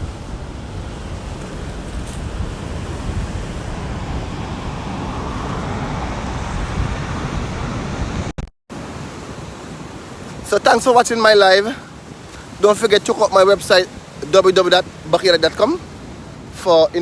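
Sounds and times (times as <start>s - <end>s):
wind on microphone: 0.0s - 8.3s
storm surf pounding shore: 0.0s - 17.0s.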